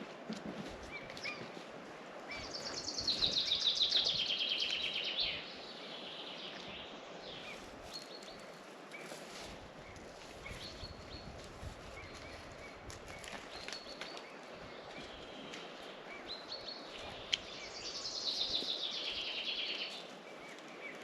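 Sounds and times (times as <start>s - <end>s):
birds chirping: 2.2s - 21.0s
songbird trilling: 2.3s - 5.6s.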